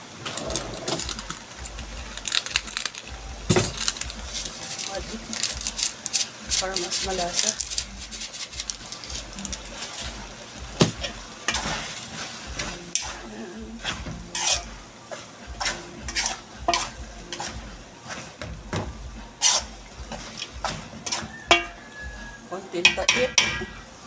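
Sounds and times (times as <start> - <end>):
sauce sizzling: 0.0 - 24.0
utensil scraping and knocking pan: 13.8 - 14.7, 15.6 - 21.8.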